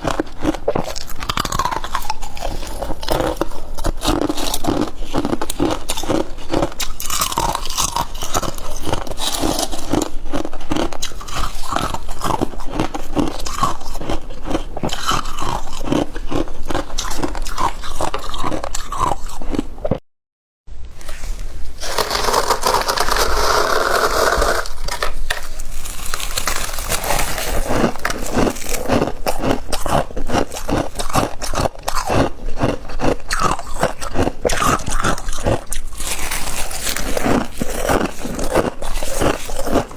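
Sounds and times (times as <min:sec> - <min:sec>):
crunching frost: 0:21.0 - 0:39.9.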